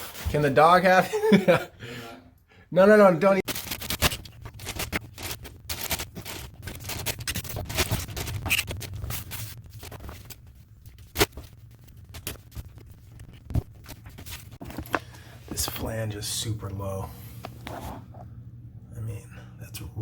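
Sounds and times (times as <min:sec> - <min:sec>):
tools scraping and scratching: 0:03.5 - 0:10.4, 0:17.6 - 0:18.2.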